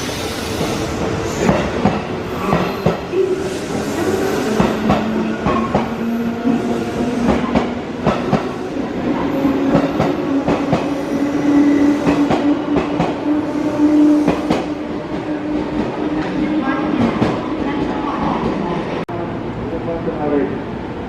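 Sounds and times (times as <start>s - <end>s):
train wheels clicking over rails: 0.0s - 16.4s.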